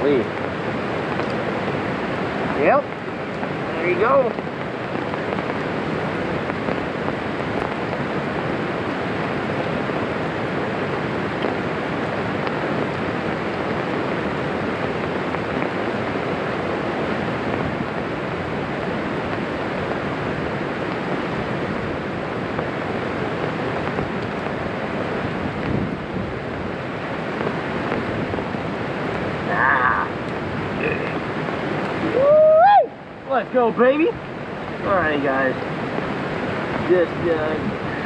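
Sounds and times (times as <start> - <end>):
heavy rain on umbrella: 0.0 - 38.0.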